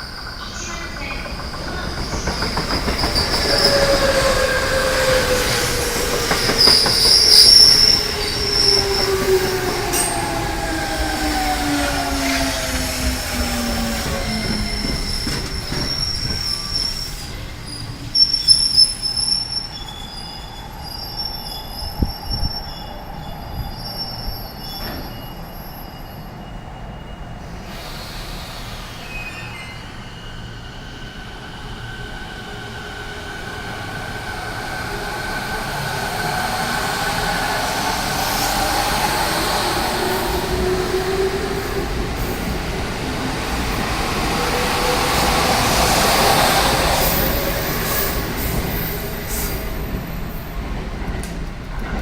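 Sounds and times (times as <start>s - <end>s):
sharp high squeals: 0.2s - 31.9s.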